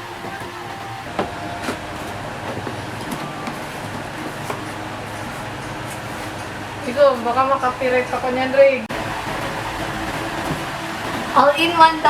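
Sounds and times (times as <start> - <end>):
packaging knocks and clicks: 0.0 - 6.6.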